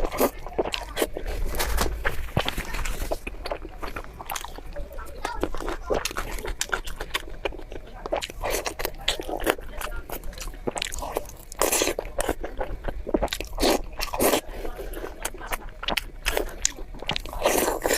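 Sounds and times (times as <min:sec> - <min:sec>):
person chewing with crunches: 0:00.0 - 0:17.9.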